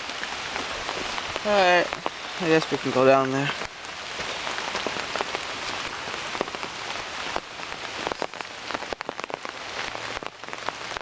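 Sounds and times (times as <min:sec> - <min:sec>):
heavy rain hissing: 0:00.0 - 0:11.0
sharp raindrop taps: 0:00.0 - 0:11.0.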